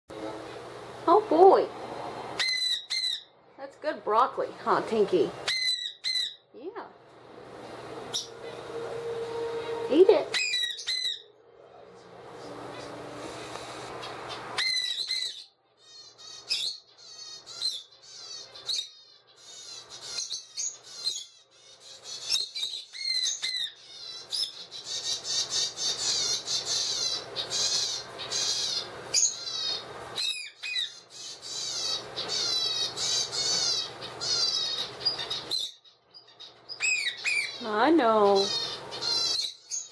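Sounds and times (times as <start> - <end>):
parakeet chick begging calls: 2.4 - 3.3, 5.2 - 6.4, 9.6 - 11.2, 13.9 - 39.9.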